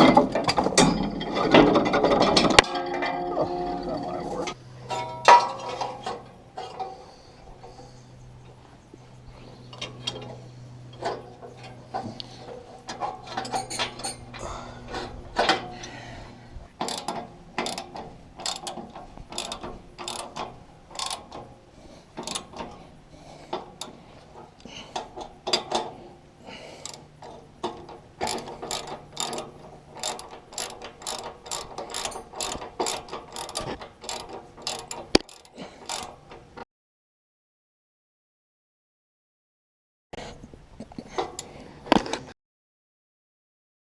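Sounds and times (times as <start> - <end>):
metallic clicks and clinks: 16.8 - 21.5, 22.2 - 22.8, 26.8 - 36.4.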